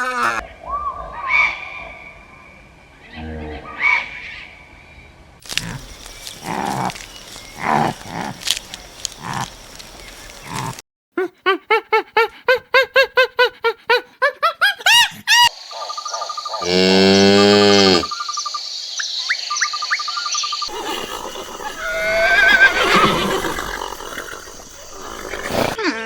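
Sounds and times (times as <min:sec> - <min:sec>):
harsh noisy animal calls: 0:05.4 - 0:10.8, 0:15.8 - 0:18.2, 0:20.7 - 0:25.8
sliding animal calls: 0:05.4 - 0:10.8, 0:20.7 - 0:25.8
short rising animal calls: 0:20.7 - 0:25.8.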